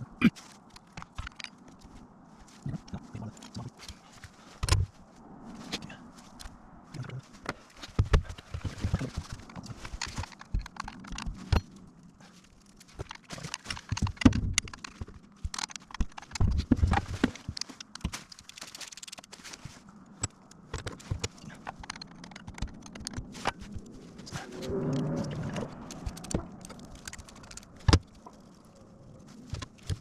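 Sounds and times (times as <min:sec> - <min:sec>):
knocks and clatter: 0:12.9 - 0:19.2, 0:20.2 - 0:23.8.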